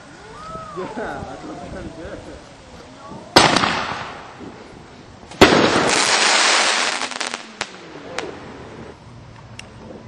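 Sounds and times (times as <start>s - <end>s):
firework hiss with cracks: 0.0s - 9.5s
firework bang: 3.3s - 4.6s, 5.3s - 8.7s
firework pops: 3.4s - 4.6s, 5.3s - 8.3s.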